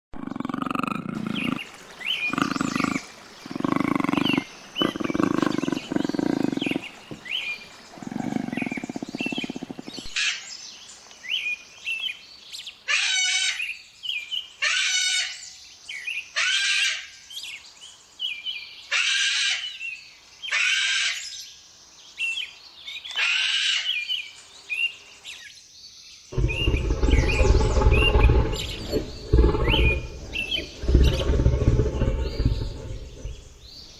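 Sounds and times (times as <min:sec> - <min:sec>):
leopard rasping grunts: 0:00.3 - 0:10.2, 0:26.4 - 0:33.9
small birds chirping: 0:01.2 - 0:12.7, 0:26.4 - 0:33.9
loud low rumbling: 0:26.4 - 0:33.7.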